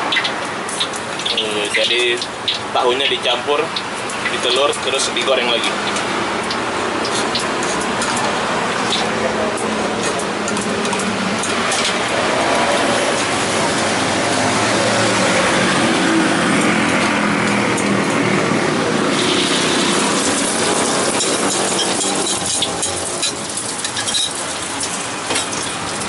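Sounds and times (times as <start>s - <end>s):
egg sizzling in hot oil: 19.1s - 26.0s.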